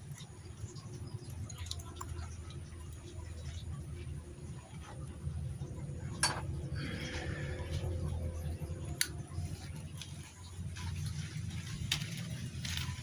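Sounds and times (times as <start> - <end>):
steady low hum: 0.0 - 13.0
rustling: 9.4 - 13.0.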